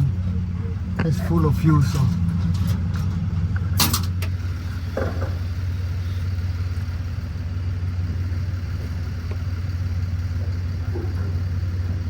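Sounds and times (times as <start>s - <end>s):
low mechanical hum: 0.0s - 12.0s
sharp metallic clank: 1.9s - 4.4s.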